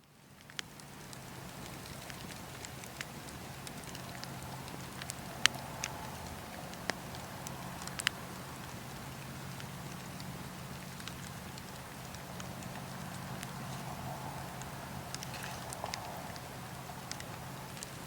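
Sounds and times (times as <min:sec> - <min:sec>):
campfire crackling and popping: 0:00.0 - 0:18.0
low fire rumble: 0:00.1 - 0:18.0.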